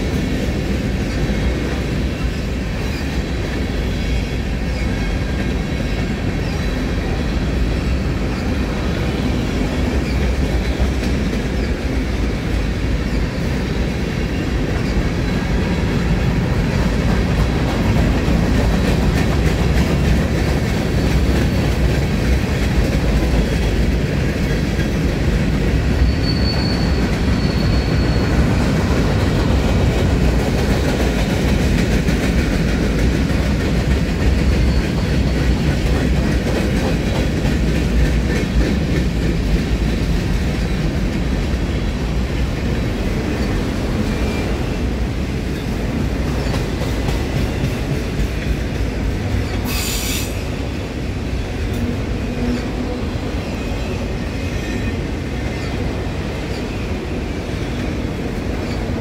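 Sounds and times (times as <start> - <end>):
steel wheels rumbling on rails: 0.0 - 59.0
high squeal: 25.9 - 28.6.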